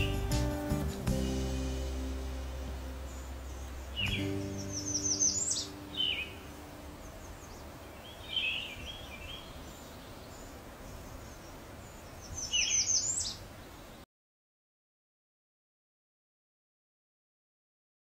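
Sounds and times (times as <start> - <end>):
small birds chirping: 0.0 - 14.1.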